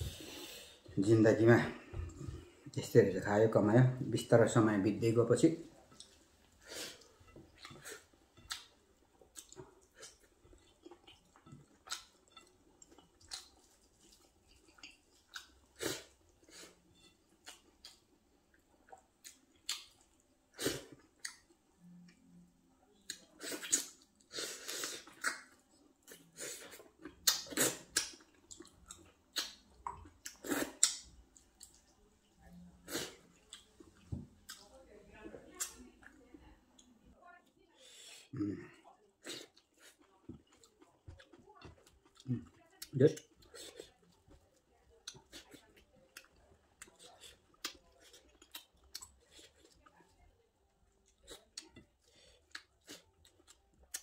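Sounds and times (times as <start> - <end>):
man chewing and lip smacking: 5.9 - 6.2, 7.0 - 22.2, 23.0 - 32.0, 33.3 - 34.7, 39.2 - 44.4, 45.0 - 49.8, 51.0 - 54.0.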